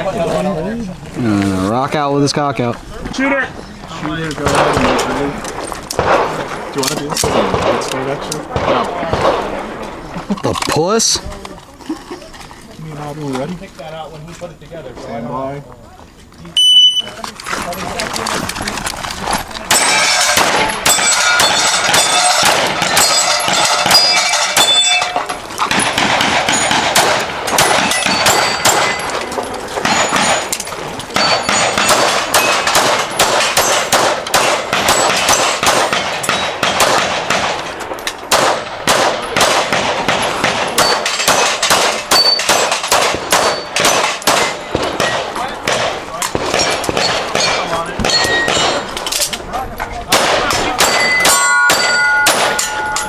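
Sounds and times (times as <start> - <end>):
pistol shots: 4.4 - 10.1, 19.7 - 49.1, 50.1 - 53.0
steel targets ringing: 19.7 - 33.9, 40.7 - 45.2, 46.6 - 49.0, 50.6 - 53.0.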